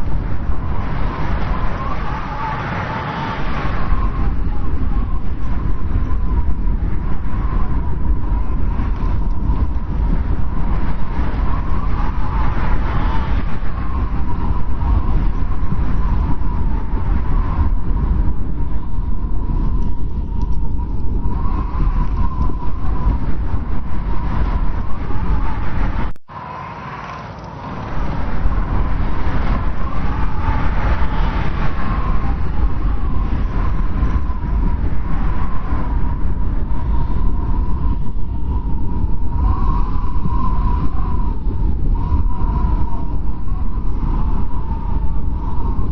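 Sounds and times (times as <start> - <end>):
howling storm wind: 0.0 - 45.9.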